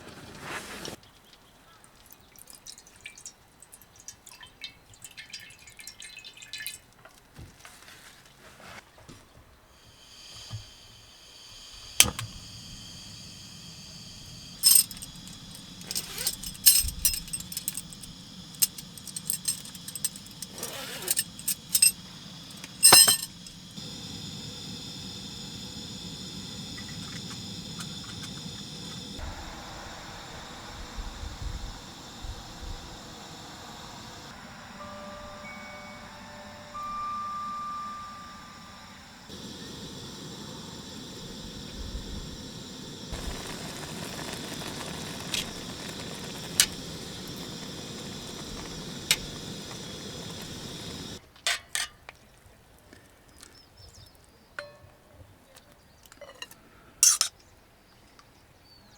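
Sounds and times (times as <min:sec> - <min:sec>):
steady hiss and low hum: 0:09.0 - 0:51.4
hard objects clinking and knocking: 0:14.6 - 0:23.7.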